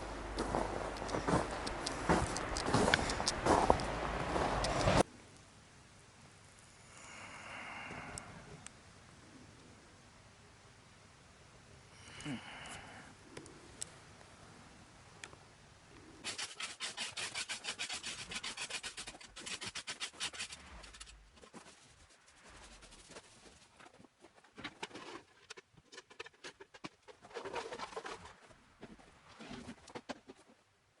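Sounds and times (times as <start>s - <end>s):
rapid rubbing strokes: 16.2s - 23.7s
faint irregular scratching: 16.2s - 30.5s.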